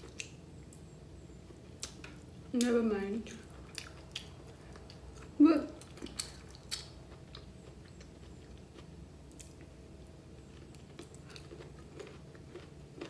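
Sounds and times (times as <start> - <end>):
low steady hum: 0.0 - 13.0
person chewing food: 3.3 - 13.0.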